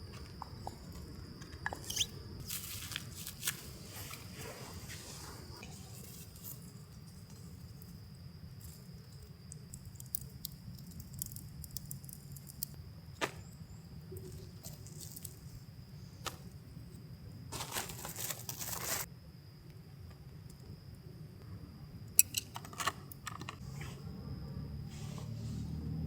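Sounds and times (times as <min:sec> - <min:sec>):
crinkling rustle: 0:02.4 - 0:08.0, 0:17.5 - 0:19.1.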